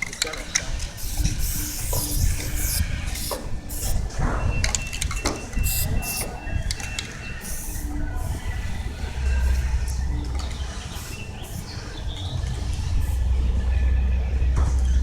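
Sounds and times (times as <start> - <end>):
spray bottle squirts: 1.0 - 4.1, 5.6 - 6.4, 7.4 - 7.9, 11.0 - 11.8.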